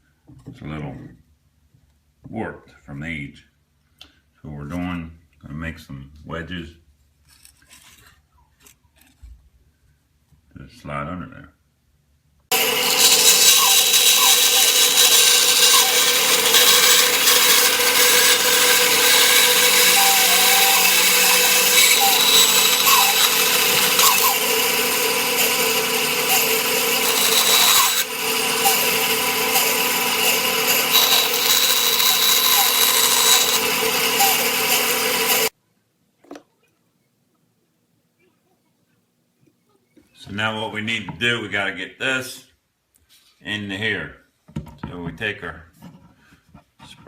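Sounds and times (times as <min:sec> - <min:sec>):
bandsaw cutting wood: 0:12.5 - 0:35.5.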